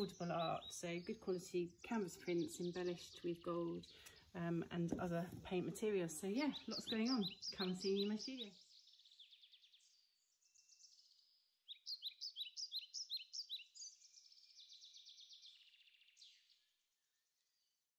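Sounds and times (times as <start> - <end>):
songbirds chirping and trilling: 0.0 - 17.9
bird down-slurred chirps: 6.4 - 9.7, 11.7 - 16.1.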